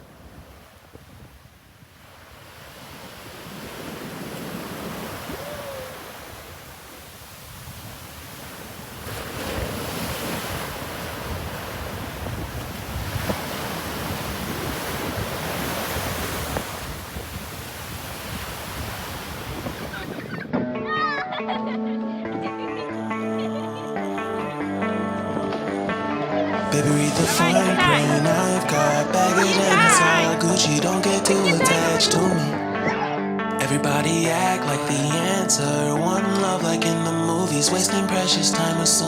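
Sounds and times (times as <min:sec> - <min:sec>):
heavy surf breaking: 0:00.0 - 0:20.6, 0:24.1 - 0:33.0
wind buffeting microphone: 0:00.0 - 0:20.7.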